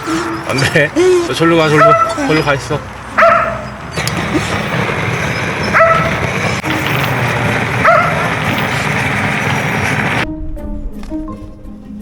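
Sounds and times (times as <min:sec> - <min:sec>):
dog barking: 0:01.6 - 0:02.6, 0:03.2 - 0:03.8, 0:05.6 - 0:06.2, 0:07.8 - 0:08.5.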